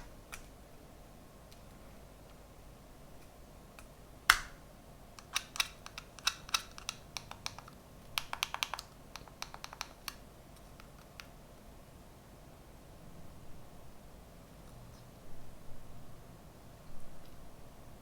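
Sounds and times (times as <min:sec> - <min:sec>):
plastic parts clicking and tapping: 0:05.2 - 0:11.3.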